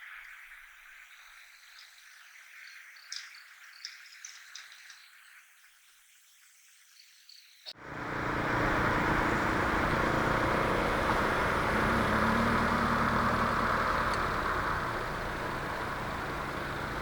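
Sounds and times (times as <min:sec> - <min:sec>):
road traffic rushing: 0:07.8 - 0:17.0.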